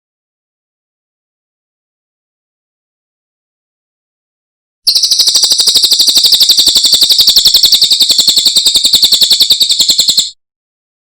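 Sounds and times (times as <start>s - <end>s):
bird singing rapid trill: 4.9s - 10.4s.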